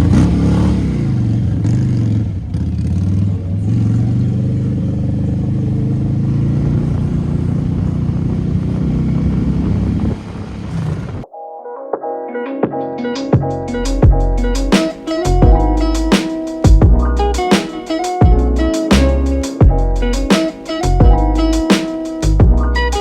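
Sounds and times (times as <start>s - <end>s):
engine revving high: 0.0s - 11.2s.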